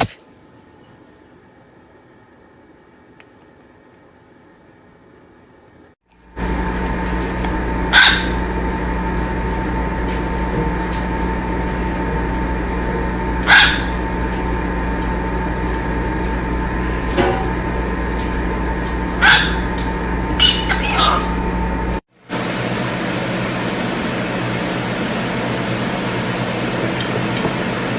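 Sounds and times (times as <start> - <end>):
electrical hum: 0.0 - 27.9
sharp animal calls: 7.9 - 8.4, 13.4 - 14.0, 19.2 - 19.6, 20.4 - 21.4.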